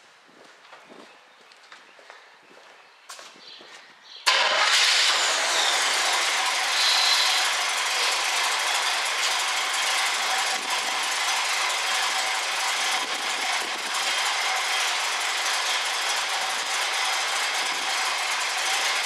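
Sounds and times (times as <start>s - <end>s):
car engine idling: 4.3s - 19.0s.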